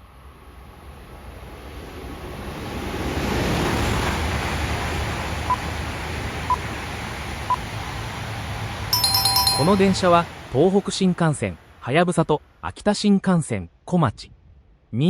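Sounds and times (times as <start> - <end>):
short high beeps: 9.0 - 10.1.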